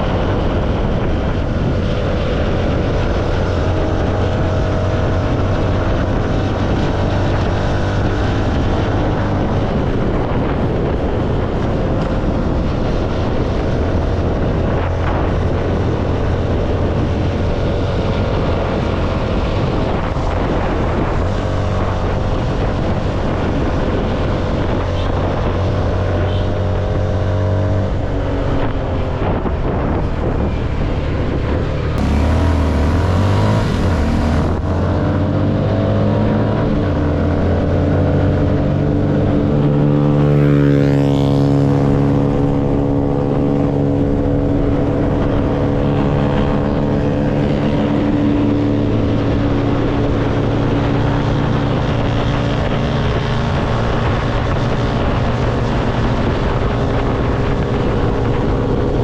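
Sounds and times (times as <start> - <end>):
motorcycle engine running: 27.9 - 59.0.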